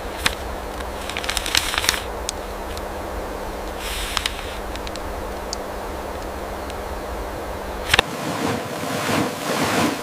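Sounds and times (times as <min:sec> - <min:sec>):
low rumble: 0:00.0 - 0:09.7
faint steady hum: 0:00.0 - 0:09.8
sharp little ticks: 0:00.2 - 0:02.9.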